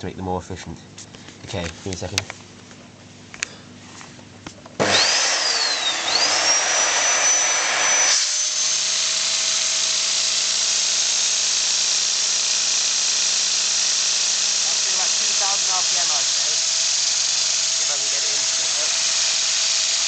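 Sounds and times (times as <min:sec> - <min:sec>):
vacuum cleaner whirring: 0:04.7 - 0:20.0
pneumatic engine high whine: 0:04.8 - 0:20.0.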